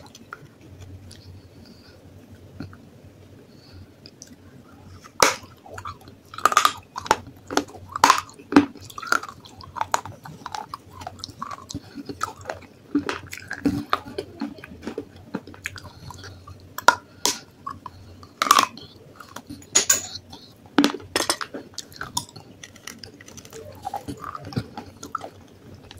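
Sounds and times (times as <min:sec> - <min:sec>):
clay being bitten and chewed: 0:21.5 - 0:25.9.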